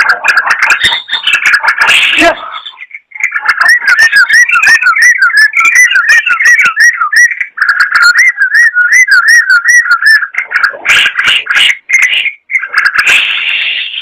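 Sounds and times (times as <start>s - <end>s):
bulbul singing whistled notes: 2.5s - 10.4s.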